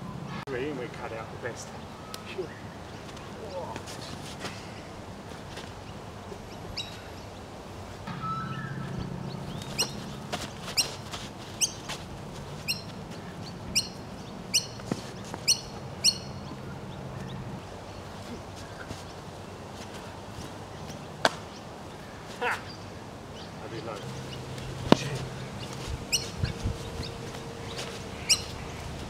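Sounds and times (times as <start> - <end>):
bird calling: 6.3 - 7.4, 8.1 - 12.0, 12.6 - 19.2, 20.8 - 29.0.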